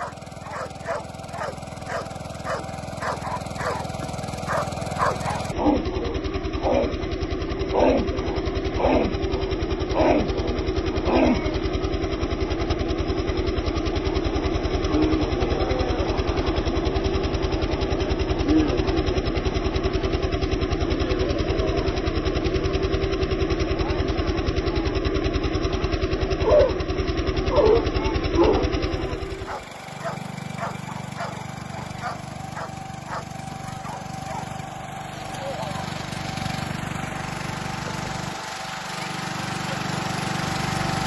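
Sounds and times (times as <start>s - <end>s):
dog barking: 0.0s - 5.8s, 23.8s - 24.9s, 26.4s - 26.8s, 27.5s - 34.5s, 35.3s - 36.0s
engine-like drone: 0.0s - 41.0s.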